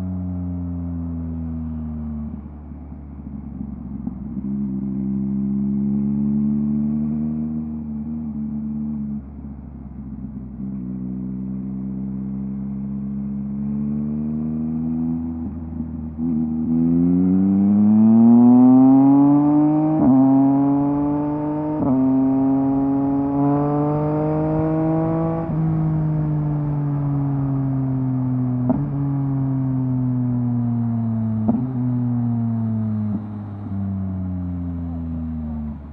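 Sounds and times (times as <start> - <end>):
motorcycle engine accelerating: 10.2 - 35.9.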